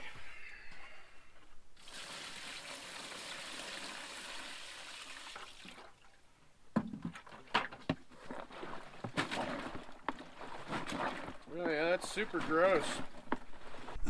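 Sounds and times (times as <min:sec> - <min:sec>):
water pouring into tub: 0:01.8 - 0:06.1, 0:08.3 - 0:14.0.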